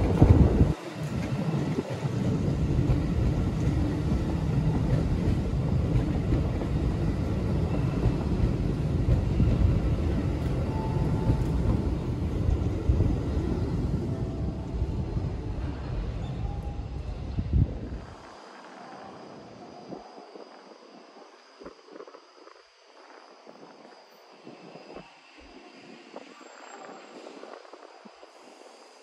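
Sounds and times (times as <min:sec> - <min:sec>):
train wheels on rail: 0:00.0 - 0:19.4.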